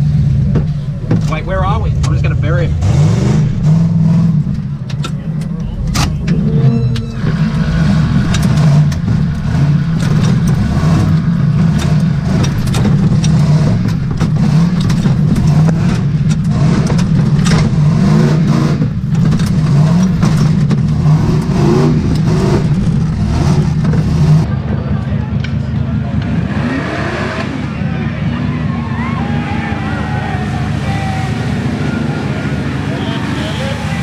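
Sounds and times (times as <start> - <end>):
engine running under load: 0.0 - 34.0
sharp knocks and rattles: 4.4 - 24.5.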